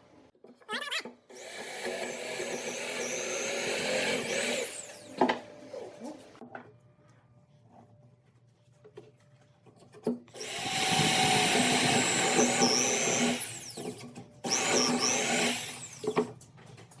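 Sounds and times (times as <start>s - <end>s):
power tool motor whining on wood: 1.3s - 5.4s, 10.4s - 16.4s.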